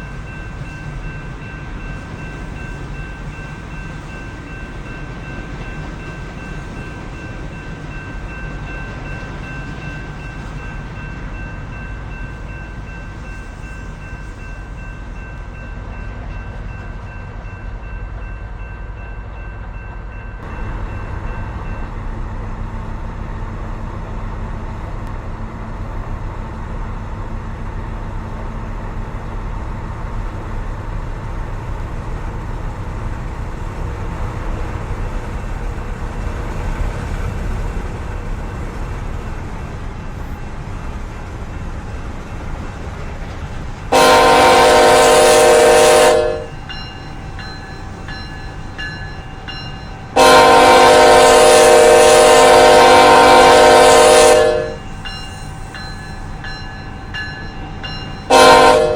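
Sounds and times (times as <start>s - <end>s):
train rumbling past: 0.0s - 58.9s.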